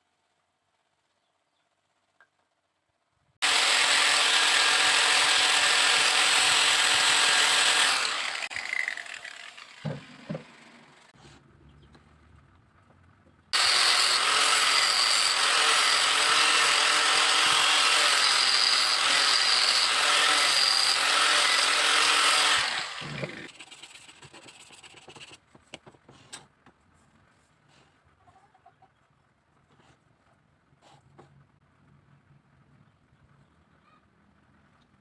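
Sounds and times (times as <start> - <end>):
power tool cutting bamboo: 3.4 - 11.2, 13.6 - 23.8.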